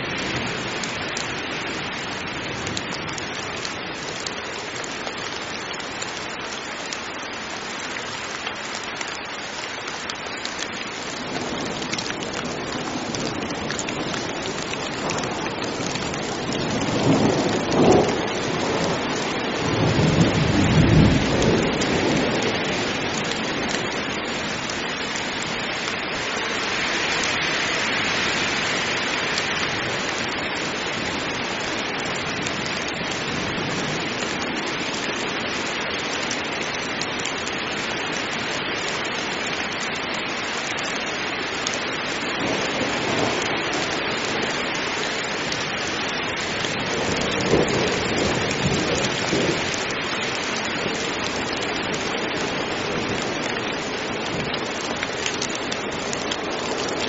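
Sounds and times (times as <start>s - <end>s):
heavy rain falling: 0.0s - 57.0s
thunder rumbling: 12.5s - 24.0s.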